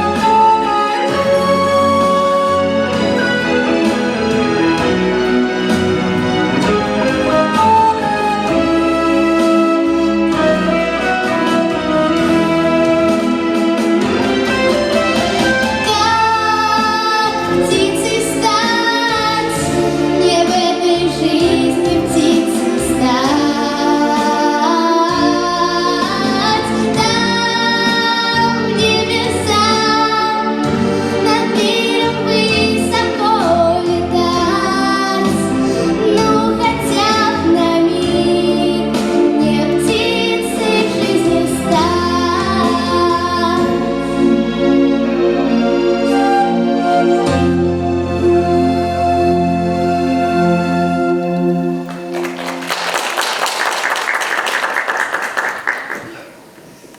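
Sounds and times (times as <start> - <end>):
instrumental backing music: 0.0 - 55.3
young woman singing: 15.9 - 30.4.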